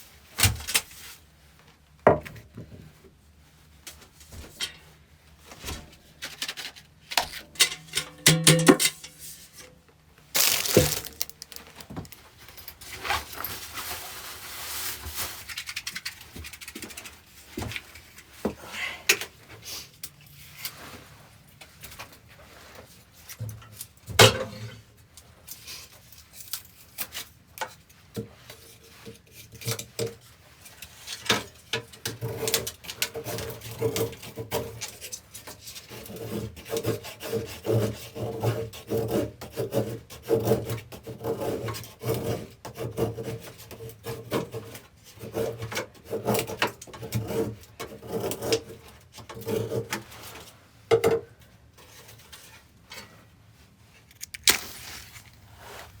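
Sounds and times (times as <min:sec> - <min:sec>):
hand tool rasping on wood: 0:36.0 - 0:48.8.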